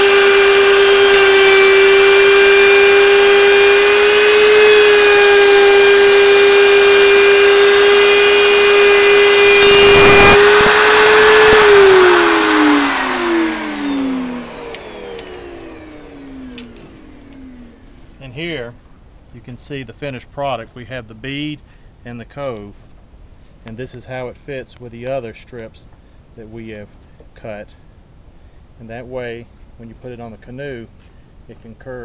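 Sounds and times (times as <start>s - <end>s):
routers whining: 0.0s - 18.2s.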